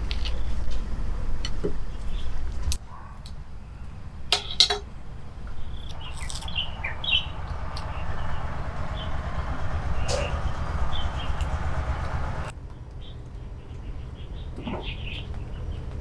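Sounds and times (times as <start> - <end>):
low steady outdoor rumble: 0.0 - 16.0.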